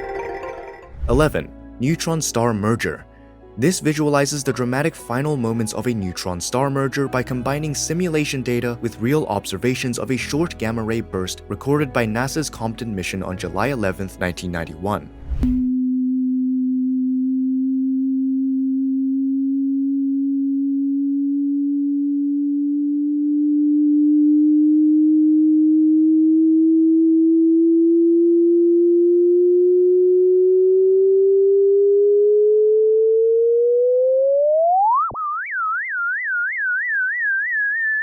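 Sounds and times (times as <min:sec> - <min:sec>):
pure tone rising in pitch: 0:15.2 - 0:38.0.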